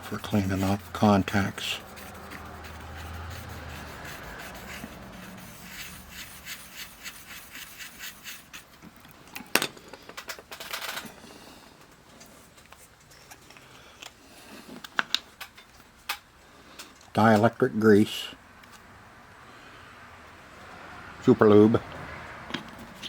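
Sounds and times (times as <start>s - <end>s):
pen scraping metal contacts: 0.0s - 8.7s.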